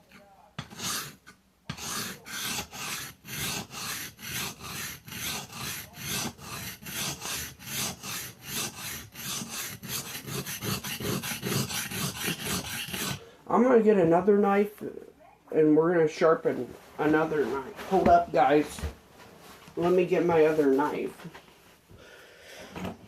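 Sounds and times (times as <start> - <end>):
knife scraping on whetstone: 0.0 - 13.2.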